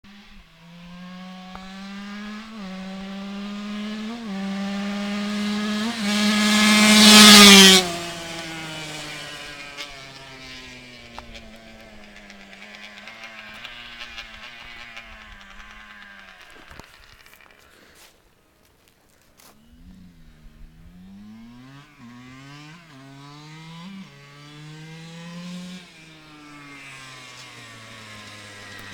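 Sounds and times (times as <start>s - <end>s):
motocross bike accelerating past: 0.1s - 18.1s, 19.6s - 28.9s.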